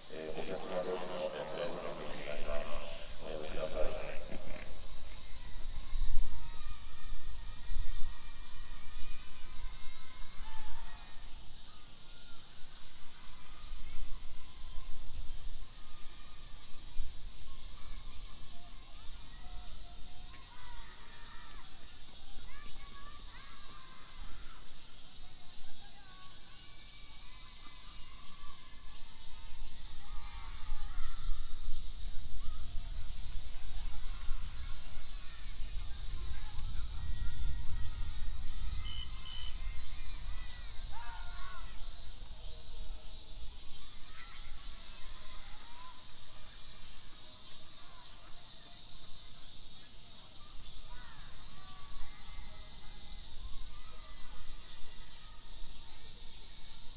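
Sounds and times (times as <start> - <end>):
high-pitched hiss: 0.0 - 56.9
bird calls: 38.7 - 40.1.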